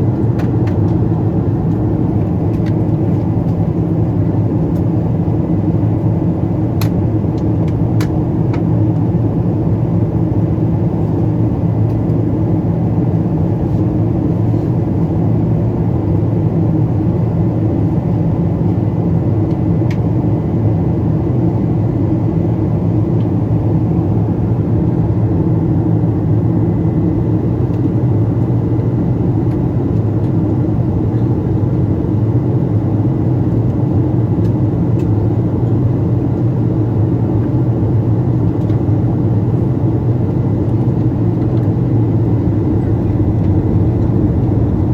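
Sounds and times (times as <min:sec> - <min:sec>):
airplane cabin rumble: 0:00.0 - 0:44.9.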